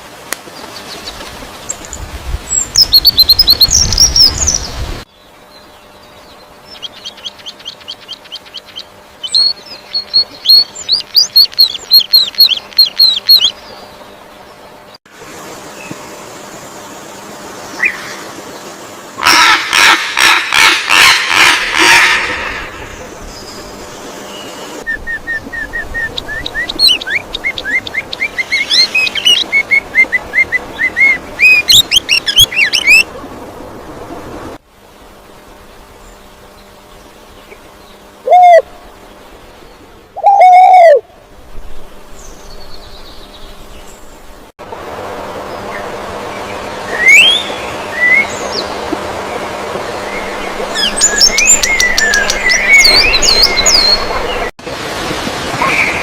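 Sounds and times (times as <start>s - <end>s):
bird giving loud arching calls: 19.2s - 23.0s.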